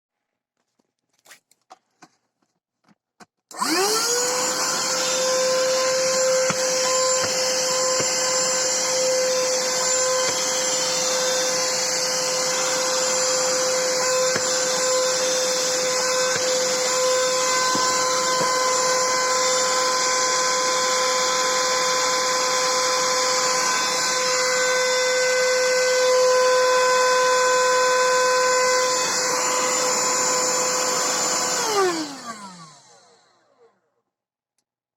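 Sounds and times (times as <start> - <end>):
handheld vacuum whining: 3.5 - 33.9.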